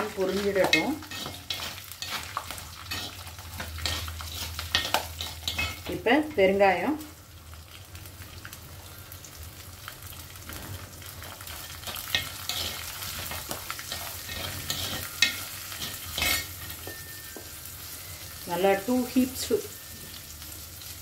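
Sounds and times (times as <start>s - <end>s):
food sizzling in hot oil: 0.0s - 21.0s
steel spoon scraping clay pot: 0.2s - 6.0s, 11.7s - 12.9s, 13.8s - 16.8s.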